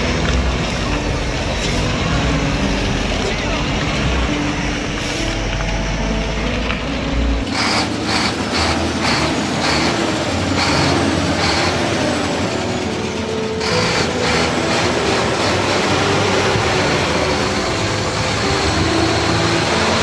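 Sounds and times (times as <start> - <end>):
heavy truck running: 0.0 - 20.0.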